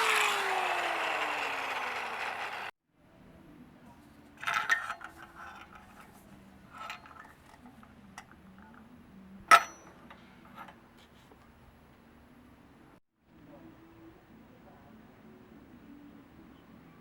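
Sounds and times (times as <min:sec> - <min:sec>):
metal tools clinking: 0:04.4 - 0:08.8, 0:09.5 - 0:11.2.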